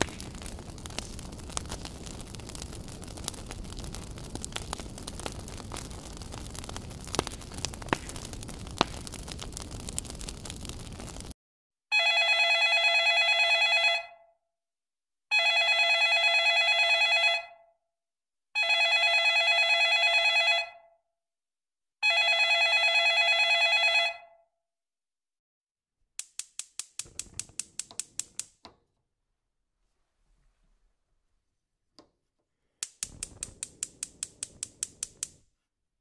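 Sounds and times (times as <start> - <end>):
sharp clicks: 0.0 - 11.2, 26.2 - 28.8, 32.8 - 35.4
telephone ringing: 11.9 - 14.2, 15.3 - 17.6, 18.6 - 20.8, 22.0 - 24.3.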